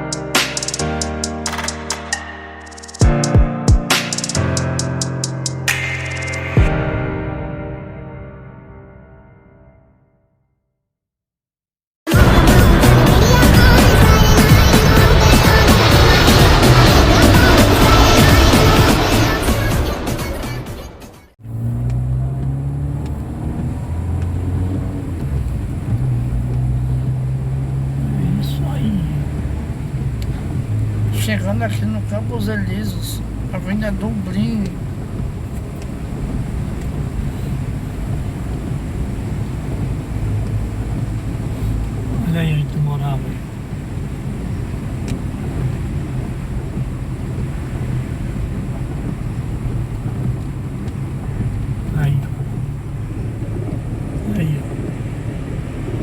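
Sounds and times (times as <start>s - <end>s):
car engine and road noise: 0.0s - 8.8s, 12.1s - 56.0s
intro music: 0.0s - 10.1s, 12.1s - 33.6s.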